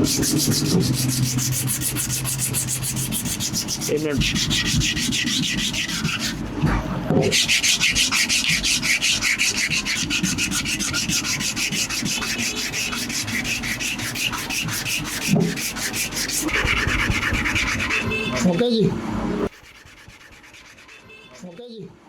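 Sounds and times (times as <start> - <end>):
abrasive rasping on steel: 0.0 - 6.6, 7.2 - 18.6.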